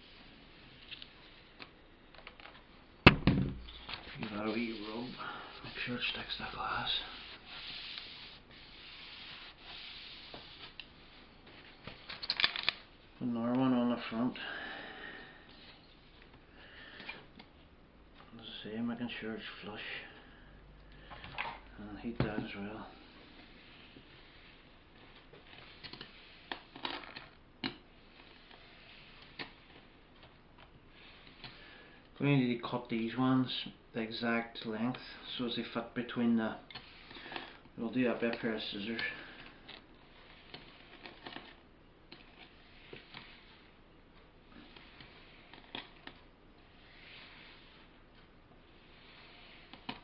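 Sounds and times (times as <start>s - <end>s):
tape rubbing along glass edge: 3.7s - 10.8s, 28.0s - 29.9s, 36.7s - 37.4s, 40.0s - 43.8s, 44.6s - 48.0s
short scraping rustle: 3.8s - 11.8s.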